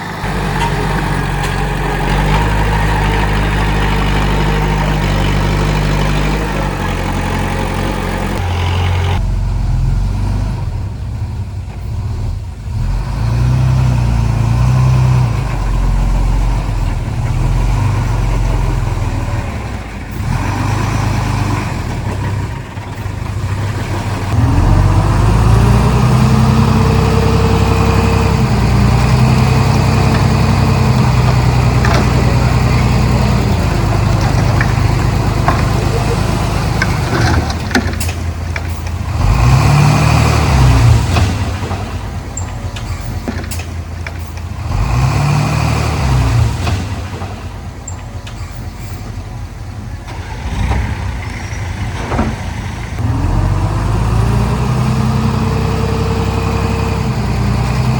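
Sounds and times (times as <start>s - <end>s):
bulldozer diesel engine running: 0.0s - 57.9s.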